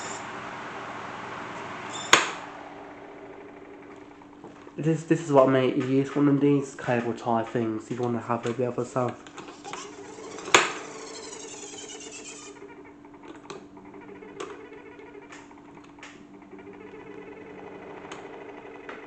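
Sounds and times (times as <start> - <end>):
small motor humming: 0.0 - 4.8, 9.2 - 19.0.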